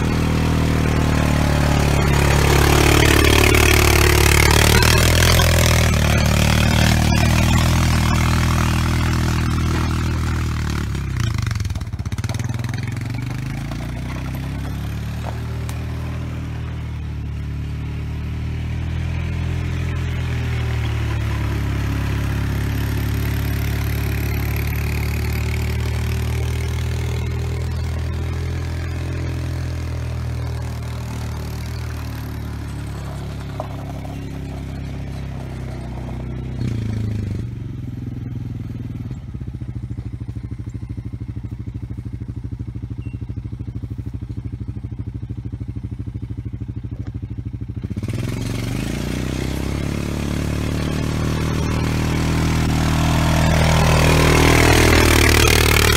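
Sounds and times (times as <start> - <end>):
gritty scraping through dirt: 0.0 - 16.9, 19.6 - 37.6, 48.1 - 55.9
atv engine running: 0.0 - 55.9.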